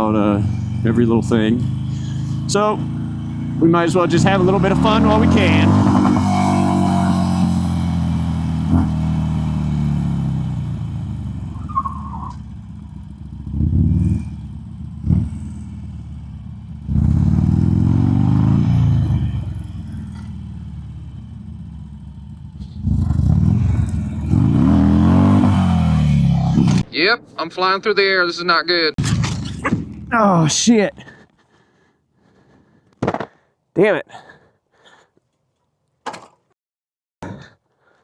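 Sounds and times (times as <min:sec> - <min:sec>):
motorcycle engine revving: 0:00.0 - 0:26.9, 0:29.0 - 0:31.2.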